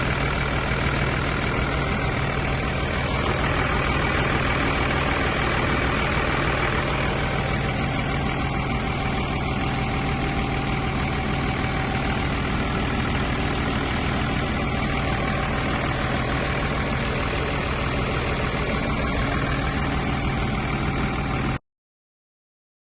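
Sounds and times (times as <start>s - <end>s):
diesel engine idling: 0.0s - 21.6s.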